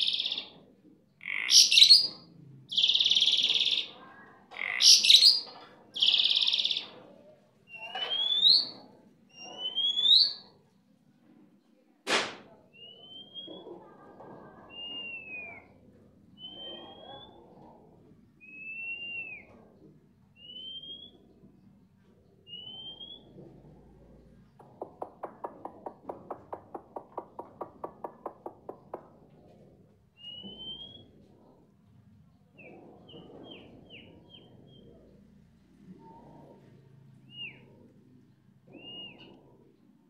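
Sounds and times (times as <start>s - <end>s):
starling whistled song: 7.7s - 8.8s, 9.4s - 10.5s, 16.4s - 17.4s, 20.4s - 21.3s, 22.5s - 23.4s, 30.2s - 31.2s, 37.3s - 37.7s, 38.7s - 39.4s.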